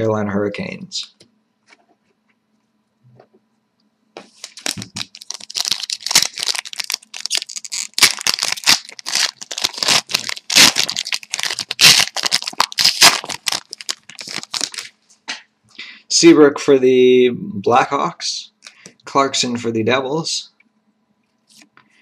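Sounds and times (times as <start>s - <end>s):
foil wrapper tearing and crinkling: 4.3s - 14.9s.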